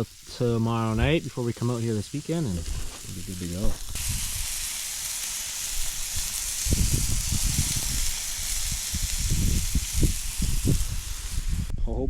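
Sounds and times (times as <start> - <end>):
steak sizzling over fire: 0.0 - 11.7.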